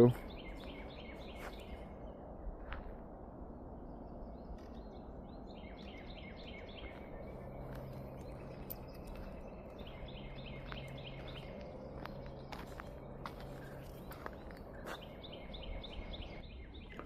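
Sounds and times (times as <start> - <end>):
small bird singing: 0.0 - 2.2, 3.9 - 17.0
low even hum: 0.0 - 17.0
outdoor background noise: 0.0 - 17.0.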